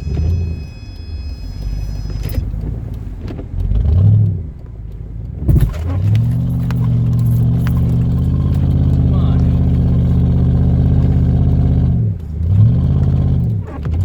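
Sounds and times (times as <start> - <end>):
vehicle engine revving: 0.0 - 14.0
thump: 5.5 - 5.9.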